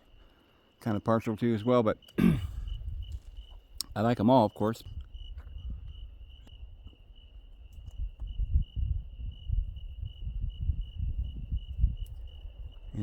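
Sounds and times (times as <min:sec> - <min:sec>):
crickets chirping: 0:00.0 - 0:13.0
wind buffeting microphone: 0:02.4 - 0:04.2, 0:04.8 - 0:13.0.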